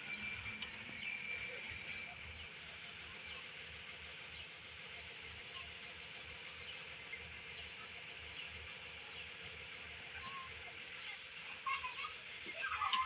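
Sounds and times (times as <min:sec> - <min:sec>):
distant diesel engine idling: 0:00.0 - 0:13.0.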